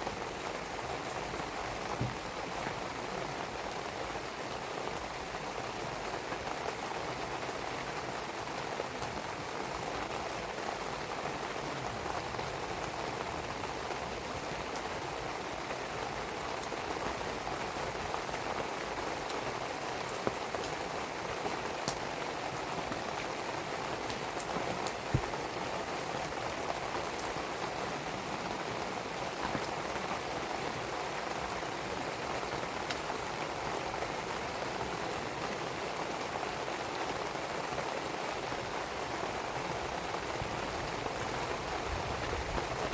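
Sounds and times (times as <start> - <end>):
steady rain falling: 0.0 - 42.9
wood fire crackling and popping: 23.2 - 28.3.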